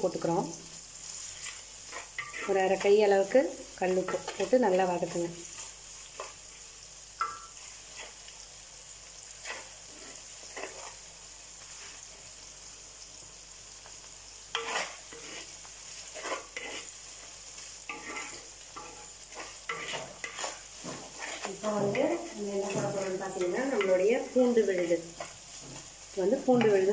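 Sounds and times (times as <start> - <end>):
vegetables sizzling in oil: 0.0 - 26.9
wooden spatula scraping clay pot: 1.4 - 3.0, 14.6 - 15.5, 16.1 - 17.0, 19.3 - 24.0.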